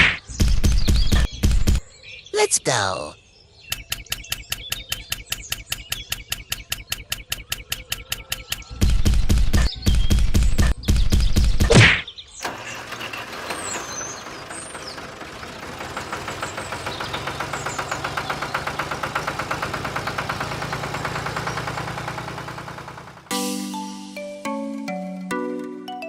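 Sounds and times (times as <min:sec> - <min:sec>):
small engine knocking: 0:03.7 - 0:09.7, 0:12.4 - 0:23.3.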